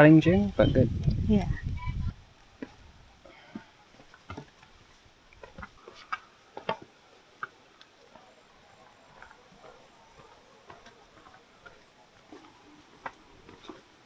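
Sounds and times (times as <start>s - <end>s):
faint steady rush: 0.0s - 14.0s
footsteps on rocky trail: 2.4s - 14.0s
walking stick tapping: 3.5s - 4.7s, 5.3s - 7.9s, 9.1s - 13.8s.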